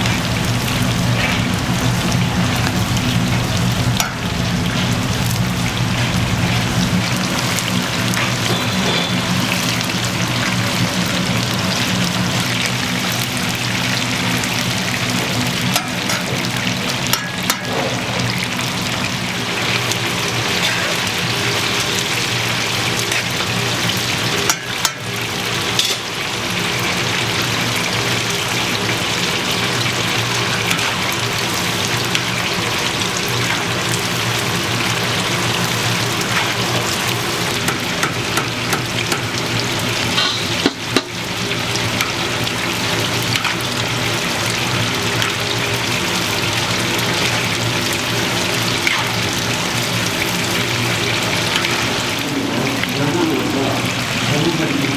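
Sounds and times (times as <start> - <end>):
chicken deep-frying in oil: 0.0 - 54.9.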